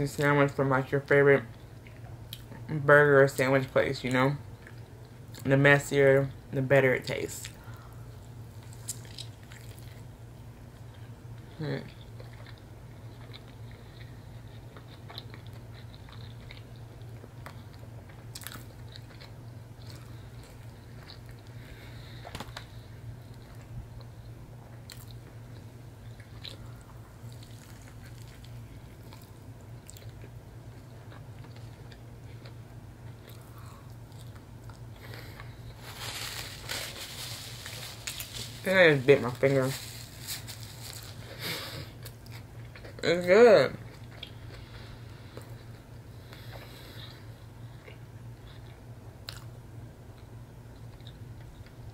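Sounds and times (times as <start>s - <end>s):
biting and chewing sandwich: 11.8s - 43.0s.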